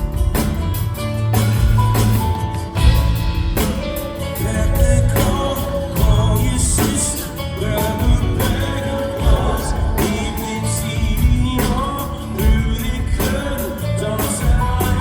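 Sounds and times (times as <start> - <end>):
drums: 0.0 - 15.0
guitar: 0.0 - 15.0
person singing lead vocal: 4.2 - 15.0.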